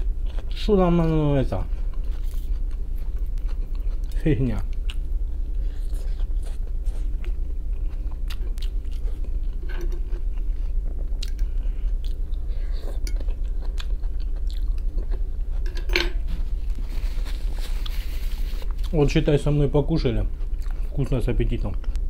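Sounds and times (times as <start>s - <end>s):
person chewing food: 0.0s - 0.6s, 1.6s - 19.0s, 20.3s - 21.0s
steady low hum: 0.0s - 22.0s.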